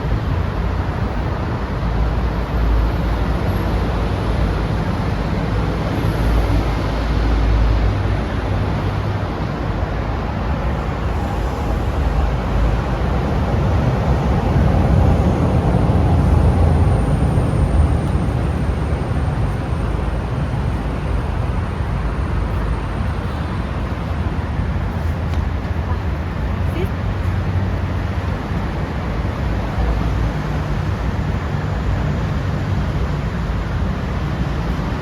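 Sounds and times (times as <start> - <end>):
low rumble of vehicles: 0.0 - 35.0.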